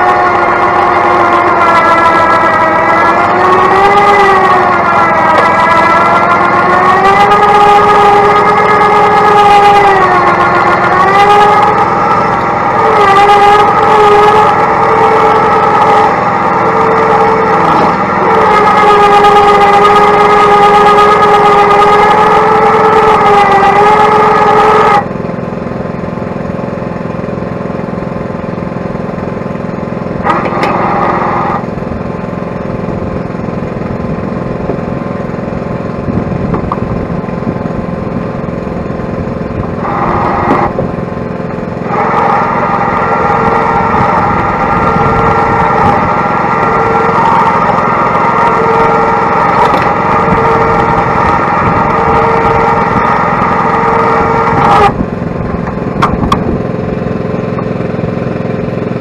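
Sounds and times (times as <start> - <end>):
excavator engine running: 0.0 - 59.0
high hydraulic whine: 0.0 - 59.0.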